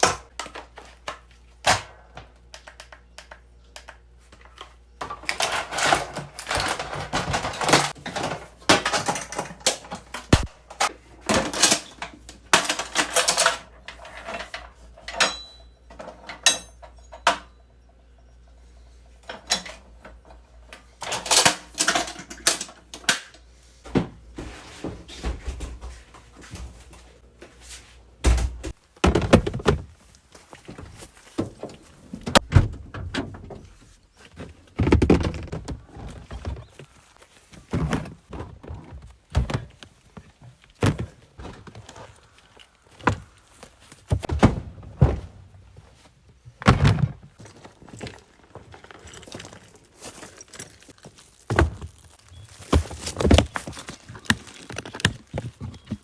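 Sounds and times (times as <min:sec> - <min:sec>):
hard objects clattering: 0:46.6 - 0:56.0.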